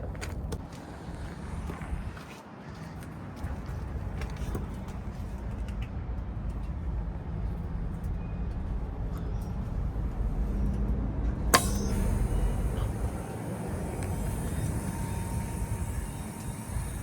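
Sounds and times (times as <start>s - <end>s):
low vehicle rumble: 3.4s - 17.0s
sharp click: 11.6s - 13.3s
steady high hiss: 11.6s - 17.0s.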